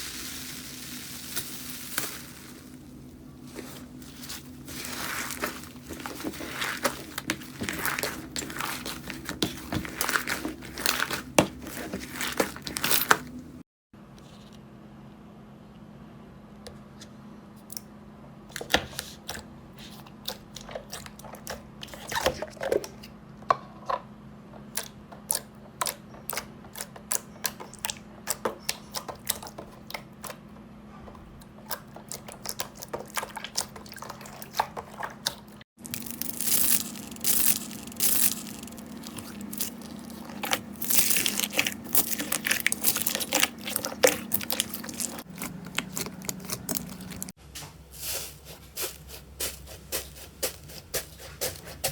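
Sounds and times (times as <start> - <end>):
slime crackling and popping: 35.8 - 47.3.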